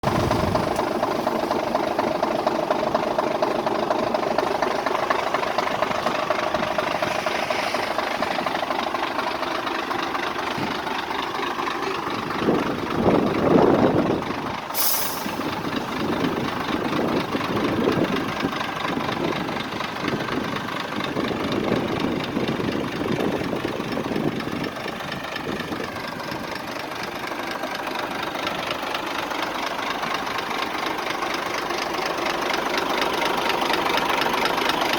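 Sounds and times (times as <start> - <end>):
truck diesel engine idling: 0.0 - 34.9
compressed air hiss: 14.7 - 15.5.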